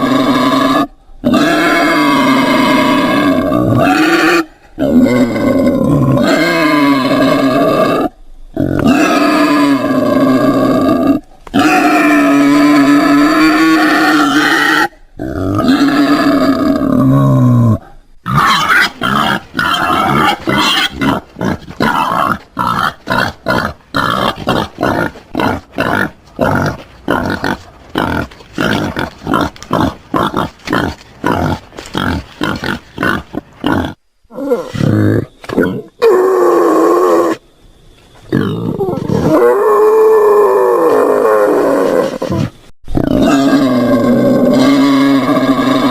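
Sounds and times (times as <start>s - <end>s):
wild boar grunting: 0.0s - 36.2s
wild boar calling: 0.0s - 37.4s, 38.3s - 45.9s.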